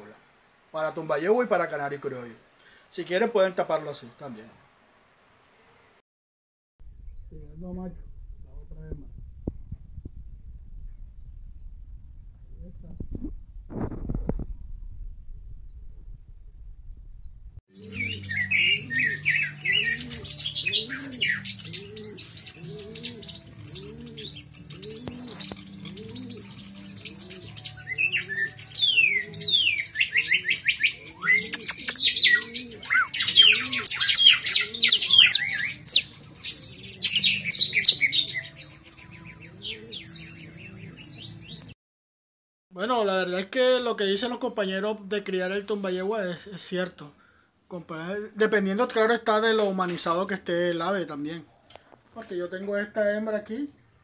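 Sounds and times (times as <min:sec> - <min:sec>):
songbirds chirping and twittering: 0:17.8 - 0:41.8.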